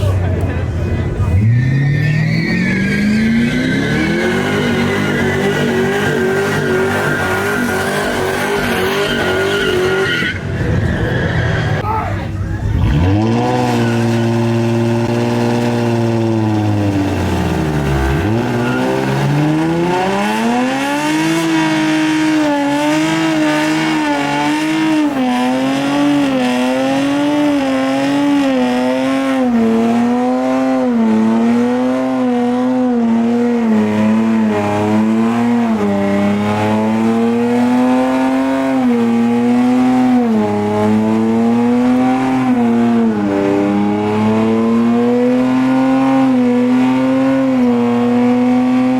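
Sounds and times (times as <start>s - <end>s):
car engine revving high: 1.0s - 11.8s, 12.4s - 48.9s
tire squeal: 1.2s - 14.6s, 17.4s - 25.2s.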